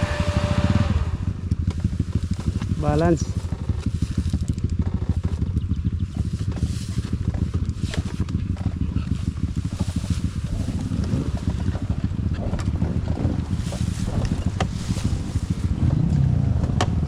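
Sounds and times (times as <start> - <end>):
dirt bike engine running: 0.0 - 17.0.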